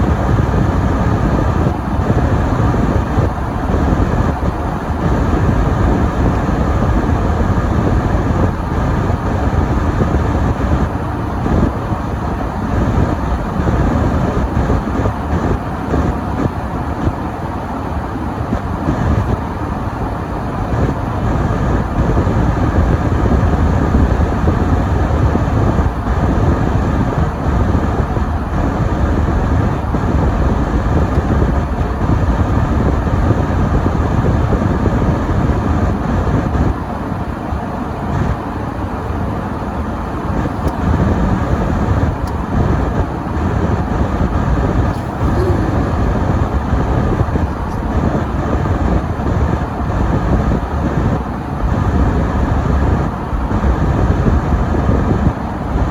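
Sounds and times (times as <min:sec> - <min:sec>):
car driving on snowy road: 0:37.3 - 0:54.8.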